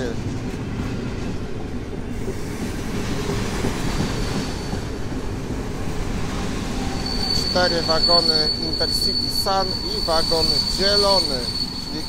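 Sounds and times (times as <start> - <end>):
train wheels rumbling on rails: 0.0 - 12.0
faint high-pitched squeal: 6.6 - 12.0.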